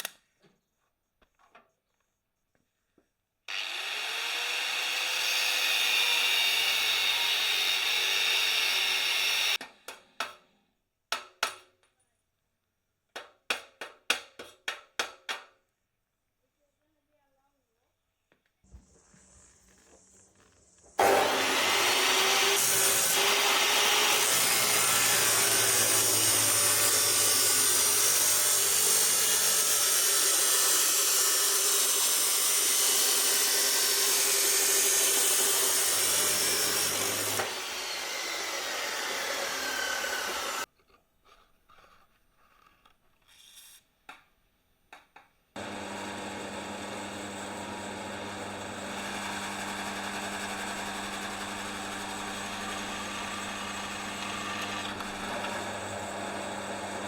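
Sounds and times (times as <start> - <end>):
power tool grinding steel: 3.5 - 9.6, 20.9 - 40.7, 45.6 - 57.0.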